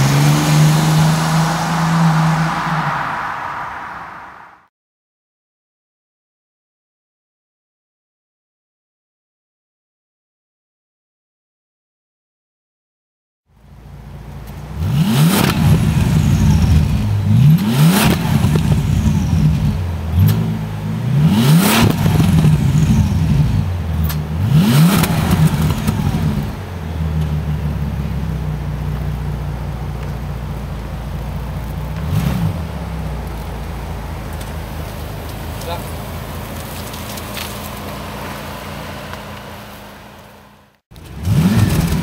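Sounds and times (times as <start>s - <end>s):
car engine revving and idling: 0.0s - 4.6s, 13.6s - 42.0s.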